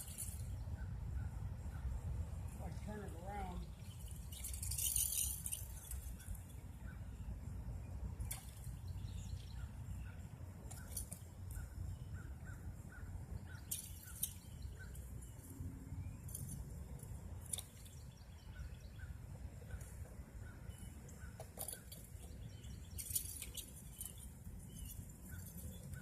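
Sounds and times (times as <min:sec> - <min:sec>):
small bird chirping: 0:08.2 - 0:26.0.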